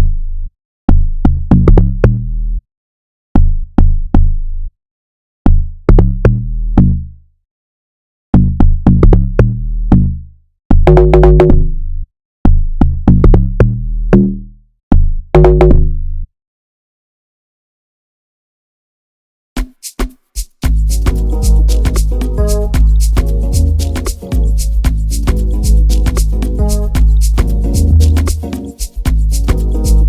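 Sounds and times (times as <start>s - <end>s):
drum machine beat: 19.6s - 30.0s
deep bass notes: 20.7s - 30.0s.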